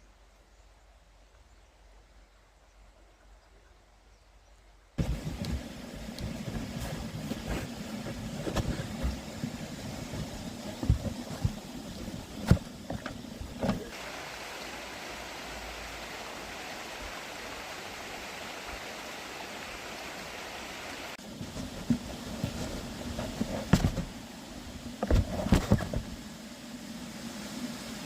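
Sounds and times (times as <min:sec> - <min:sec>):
low rumbling handling noise: 0:05.0 - 0:13.9
river water rushing: 0:05.0 - 0:21.4.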